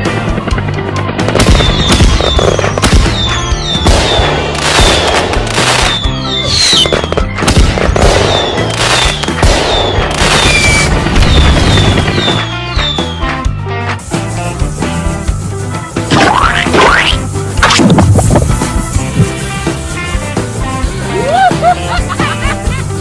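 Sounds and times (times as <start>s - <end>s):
background music: 0.0s - 23.0s
falling whistles: 1.6s - 3.9s, 5.7s - 7.0s, 8.3s - 13.5s.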